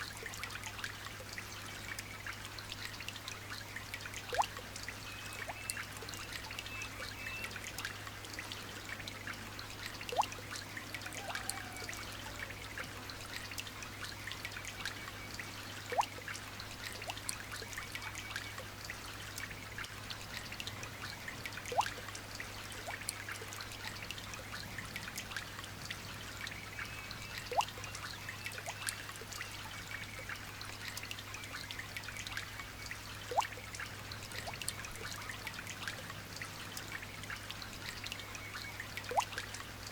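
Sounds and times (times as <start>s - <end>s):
light rain pattering: 0.0s - 39.9s
water drop plinking: 15.9s - 16.2s, 27.5s - 27.8s.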